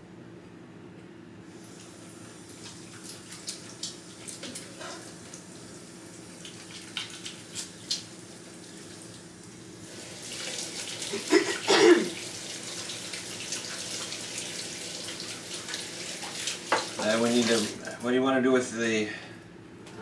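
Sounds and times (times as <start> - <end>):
hands washing under water: 1.6 - 5.5, 9.9 - 17.9
tap running into sink: 15.7 - 17.7.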